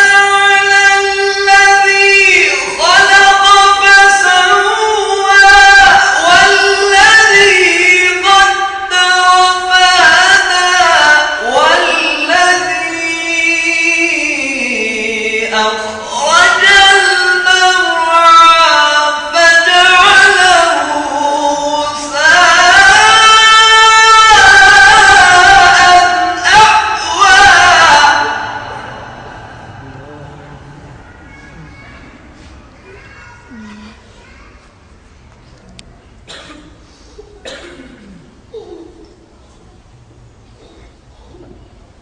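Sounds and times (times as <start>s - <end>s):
man chanting in high register: 24.3s - 31.4s.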